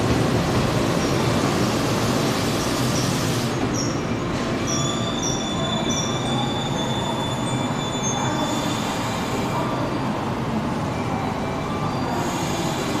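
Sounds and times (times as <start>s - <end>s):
wheel and brake squeal: 3.0s - 9.0s.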